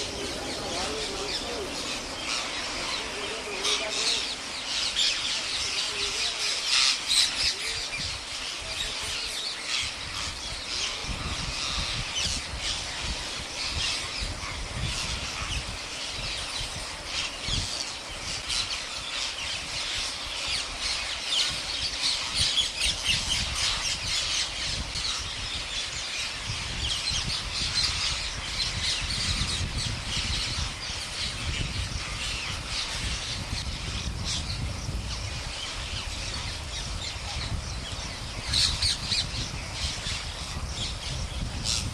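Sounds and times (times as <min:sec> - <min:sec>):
parrots squawking: 0:00.0 - 0:07.8.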